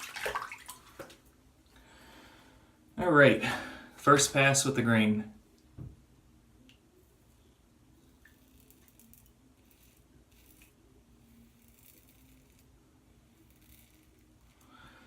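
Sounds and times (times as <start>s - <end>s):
razor scraping beard stubble: 8.3s - 12.7s, 13.3s - 14.6s.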